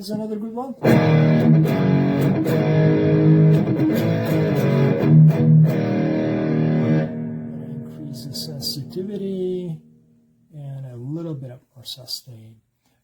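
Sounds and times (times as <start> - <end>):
electric guitar: 0.8 - 10.0.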